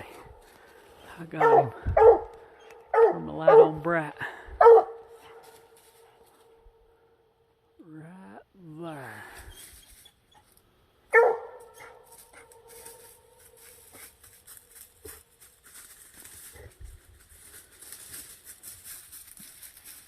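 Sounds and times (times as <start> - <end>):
faint rustles and ticks: 12.1 - 20.0.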